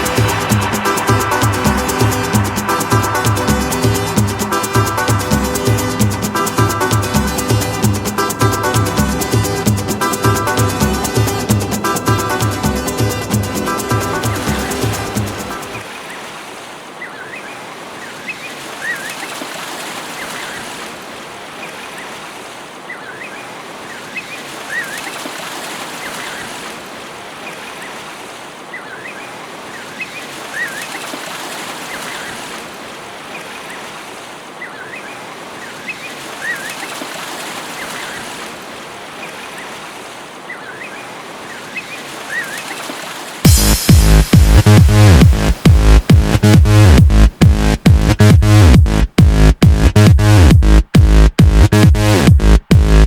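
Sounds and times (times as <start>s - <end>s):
rushing water: 0.0s - 53.0s.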